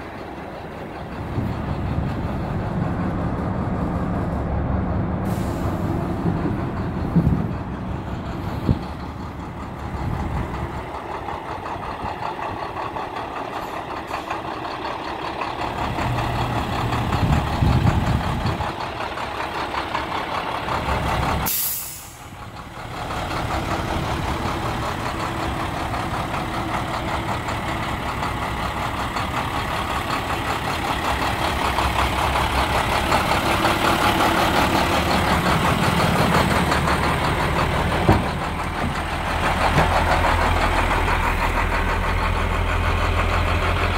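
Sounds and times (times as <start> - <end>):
diesel truck engine running: 0.0 - 43.9
short sharp hiss: 21.5 - 22.3.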